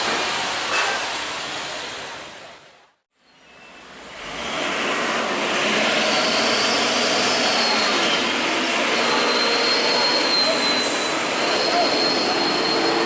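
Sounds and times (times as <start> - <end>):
heavy truck rushing noise: 3.5 - 13.0.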